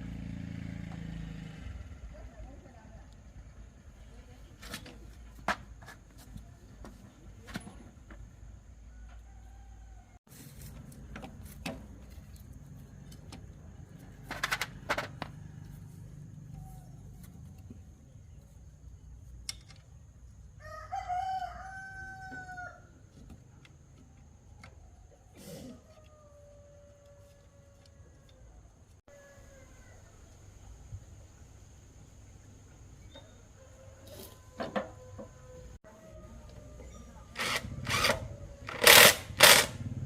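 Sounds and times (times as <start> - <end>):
rooster crowing: 8.9 - 10.2, 20.6 - 23.0, 25.8 - 30.4, 33.2 - 39.9.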